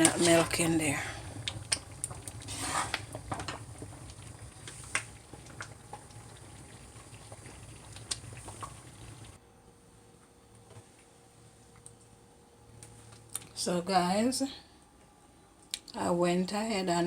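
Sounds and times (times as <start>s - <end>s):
soup bubbling in a pot: 0.0s - 9.4s
low background hum: 0.0s - 17.0s.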